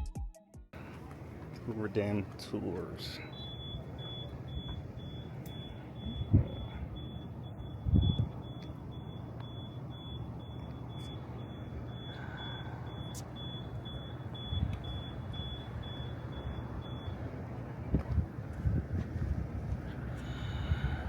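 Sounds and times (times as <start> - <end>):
low machine hum: 0.8 - 21.0
high electronic beeps: 3.2 - 17.2.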